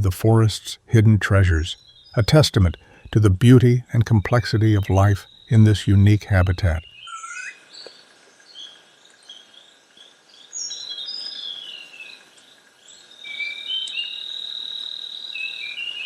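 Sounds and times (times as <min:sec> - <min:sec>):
birds chirping and whistling: 0:06.7 - 0:07.6
insect drone: 0:07.1 - 0:16.0.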